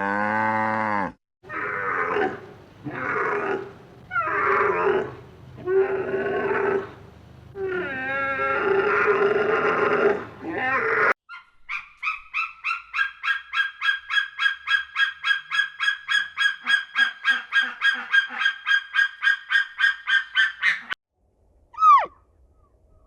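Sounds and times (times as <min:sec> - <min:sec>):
bird calling in rapid series: 0:11.3 - 0:21.0, 0:21.8 - 0:22.8.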